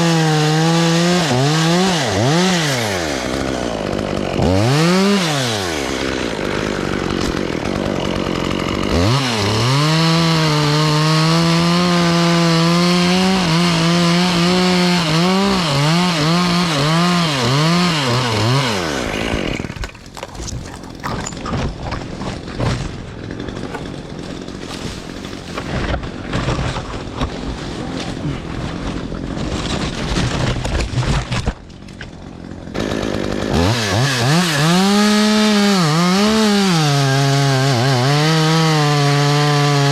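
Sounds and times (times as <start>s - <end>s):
chainsaw revving and cutting: 0.0s - 31.5s, 32.1s - 39.9s
wood cracking: 2.0s - 9.8s, 10.7s - 39.2s
rustling branches: 17.9s - 32.2s.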